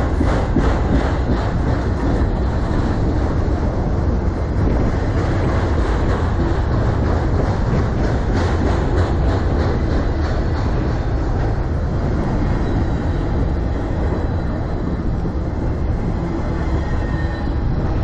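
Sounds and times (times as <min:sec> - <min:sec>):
wheel clicks over rail joints: 0:00.0 - 0:03.4
freight train rumbling past: 0:00.0 - 0:18.0.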